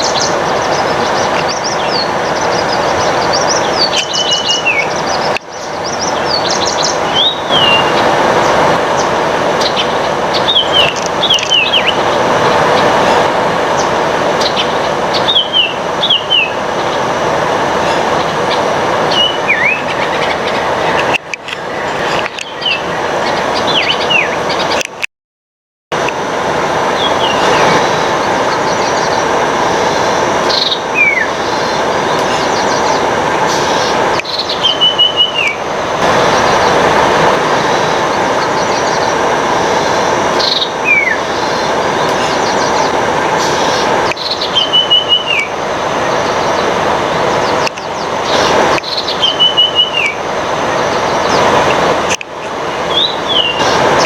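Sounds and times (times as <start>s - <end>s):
bird whistles and trills: 0.0s - 8.0s, 9.6s - 12.0s, 19.1s - 20.6s, 30.5s - 31.4s, 32.2s - 35.6s, 40.4s - 41.3s, 43.5s - 45.5s, 47.4s - 50.2s, 52.9s - 53.7s
loud steady rushing noise: 0.0s - 25.1s, 25.9s - 54.0s.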